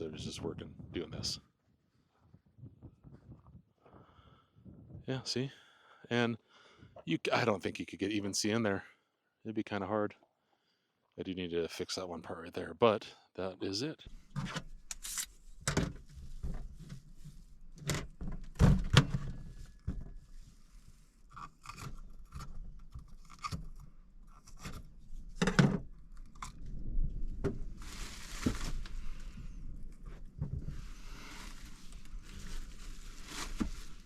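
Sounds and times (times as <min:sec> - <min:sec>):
knocks and scrapes of handling: 0:14.1 - 0:34.0
rasping ripping noise: 0:14.9 - 0:15.4, 0:21.3 - 0:25.0.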